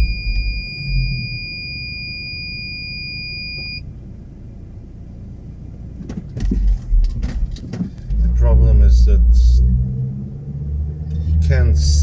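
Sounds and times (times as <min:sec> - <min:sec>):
high-pitched electronic beep: 0:00.0 - 0:03.8
low vehicle rumble: 0:00.0 - 0:12.0.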